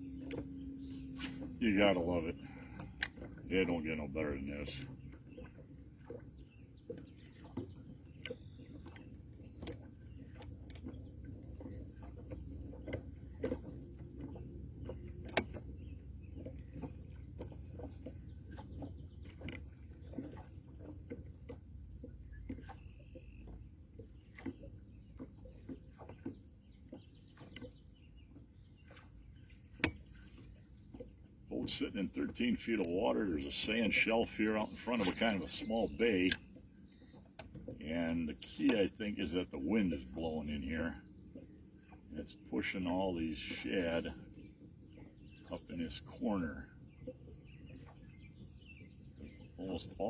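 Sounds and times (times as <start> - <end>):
wind and water rumble: 0.0 - 50.0
short bird calls: 34.5 - 37.2.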